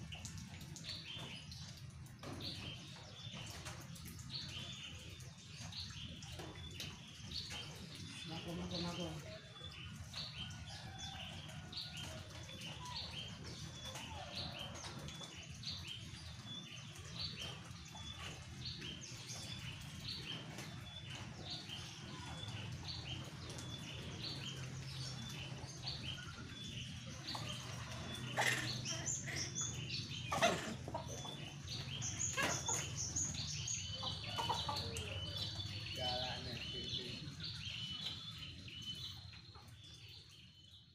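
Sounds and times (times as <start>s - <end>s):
bird chirping: 15.2s - 40.9s.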